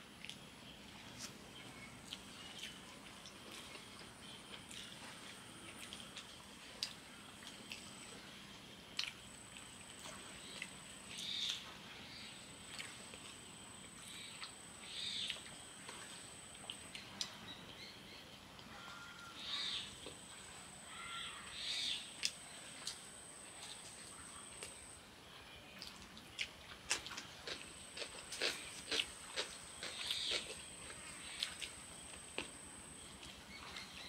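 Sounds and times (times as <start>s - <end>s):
people chewing: 0.2s - 8.2s, 8.9s - 11.2s, 22.2s - 24.9s, 25.8s - 34.0s.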